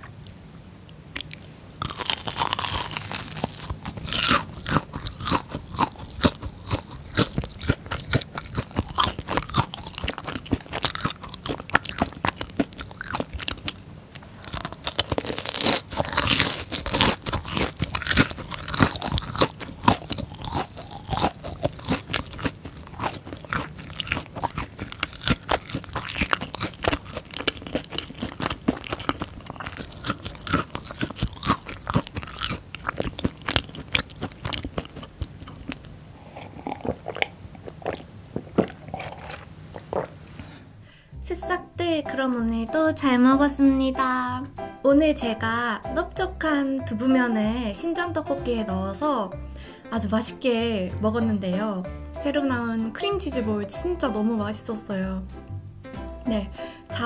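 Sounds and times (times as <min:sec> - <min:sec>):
crunchy chewing: 0:01.1 - 0:40.6.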